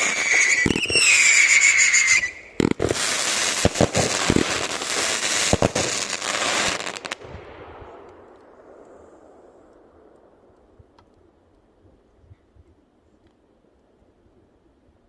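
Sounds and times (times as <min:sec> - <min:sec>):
fireworks crackling barrage: 0:00.0 - 0:10.6
fireworks bangs: 0:00.0 - 0:11.0
echo of fireworks: 0:00.0 - 0:11.6.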